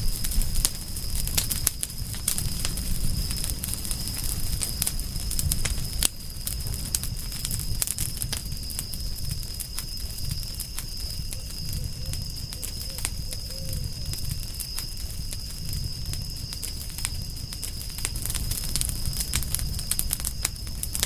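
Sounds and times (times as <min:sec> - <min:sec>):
wood fire crackling: 0:00.0 - 0:21.0
faint low wavering call: 0:11.4 - 0:13.9.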